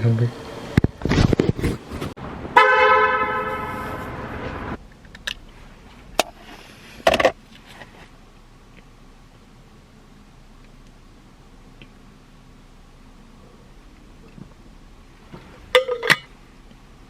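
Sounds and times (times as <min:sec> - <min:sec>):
loud horn-like tone: 0:02.6 - 0:04.5
rustling: 0:05.4 - 0:08.2.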